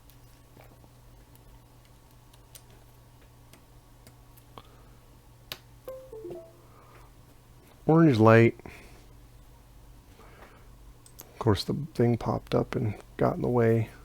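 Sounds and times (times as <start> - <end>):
computer chime: 5.9 - 6.7.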